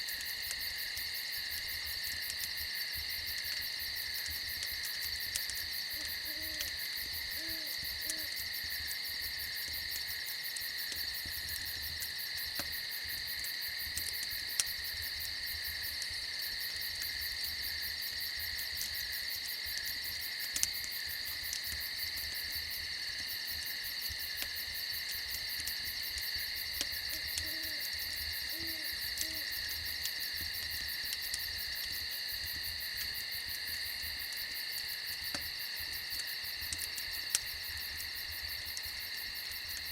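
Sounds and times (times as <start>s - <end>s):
crickets chirping: 0.0s - 39.9s
wood fire crackling: 0.0s - 39.9s
owl hooting: 6.0s - 6.7s, 7.4s - 8.3s, 27.4s - 27.8s, 28.5s - 29.5s.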